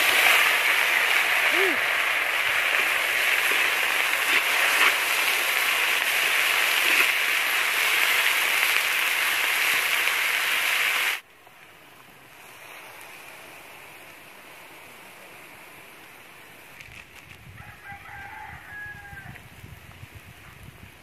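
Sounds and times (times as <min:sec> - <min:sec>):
food sizzling in a wok: 0:00.0 - 0:11.2, 0:17.4 - 0:21.0.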